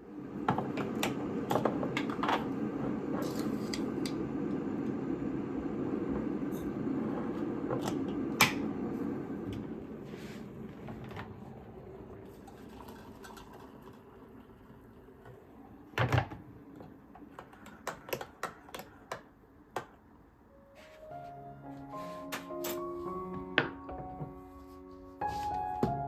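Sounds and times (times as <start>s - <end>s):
soft background music: 20.4s - 26.0s.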